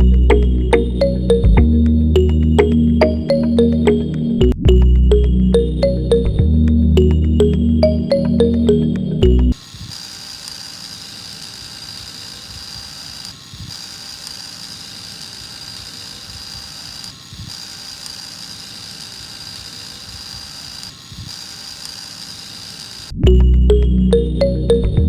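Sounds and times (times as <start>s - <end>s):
electric lawnmower motor whine: 9.5s - 23.2s.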